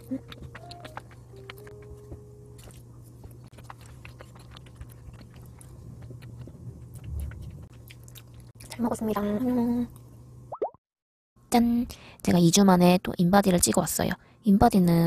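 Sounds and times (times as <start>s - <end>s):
wet mouth clicks: 0.0s - 1.9s, 3.2s - 8.5s
chewing soft bread: 0.0s - 8.8s.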